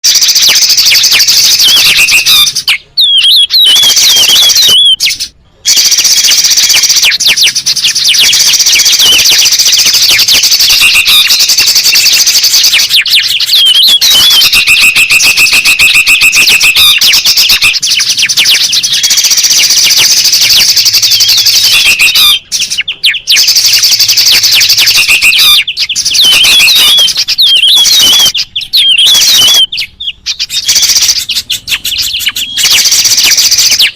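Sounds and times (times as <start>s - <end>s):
birds chirping and twittering: 0.0s - 33.9s
steady bird trill: 0.0s - 33.9s.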